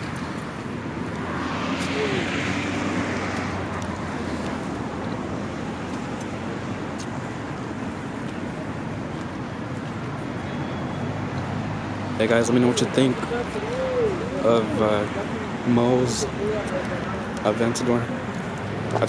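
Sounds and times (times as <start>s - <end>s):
car passing close: 0.0s - 5.9s
road traffic noise: 0.0s - 19.0s.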